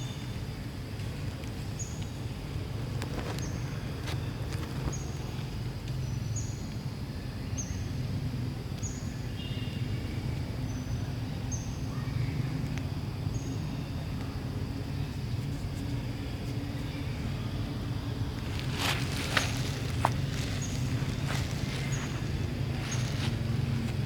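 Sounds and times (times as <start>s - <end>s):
low background rumble: 0.0s - 24.0s
small bird chirping: 18.5s - 23.5s.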